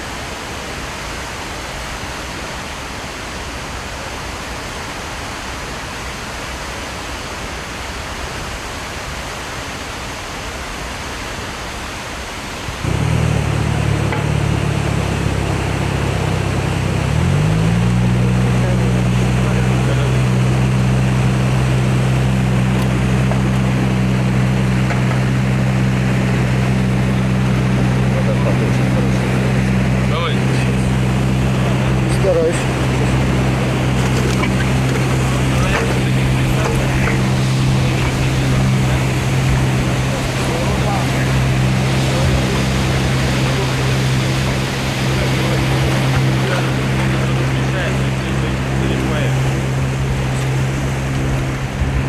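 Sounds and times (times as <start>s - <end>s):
water wash: 0.0s - 52.0s
wind: 0.0s - 52.0s
motorboat engine humming: 12.7s - 52.0s.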